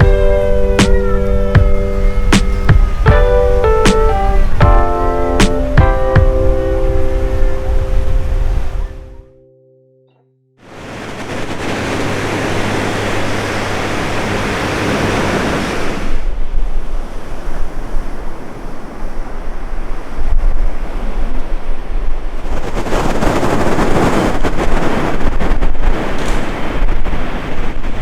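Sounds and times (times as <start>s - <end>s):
rushing water: 0.0s - 9.2s, 10.6s - 22.2s
wind buffeting microphone: 0.0s - 9.3s, 10.8s - 28.0s.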